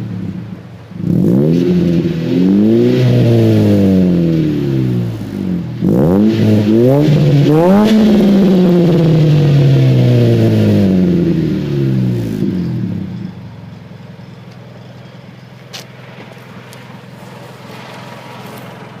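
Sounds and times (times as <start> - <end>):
car exhaust revving and idling: 0.0 - 19.0.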